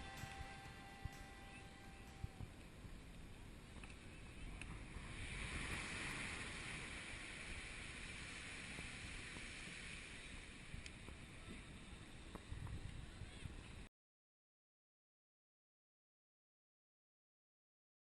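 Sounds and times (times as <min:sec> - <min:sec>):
water and waves hissing: 0:00.0 - 0:13.8
wind: 0:00.0 - 0:13.9.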